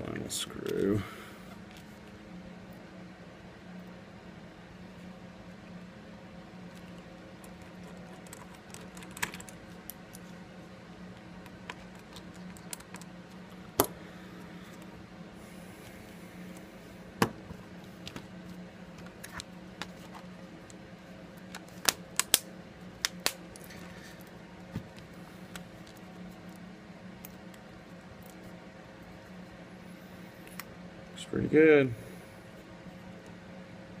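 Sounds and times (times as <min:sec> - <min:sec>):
steady low hum: 0:00.0 - 0:34.0
small parts clicking and tapping: 0:06.8 - 0:10.2.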